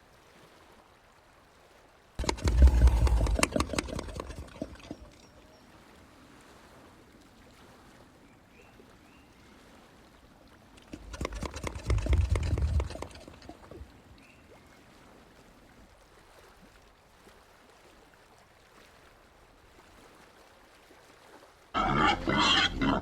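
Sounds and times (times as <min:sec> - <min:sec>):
peccary call with rapid clicks: 0:02.2 - 0:05.2, 0:10.8 - 0:13.8.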